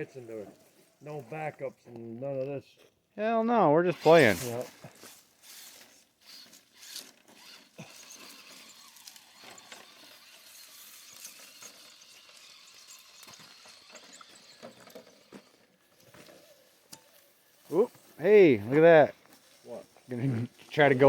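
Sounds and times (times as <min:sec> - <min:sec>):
toy truck motor whirring: 0:03.8 - 0:17.7.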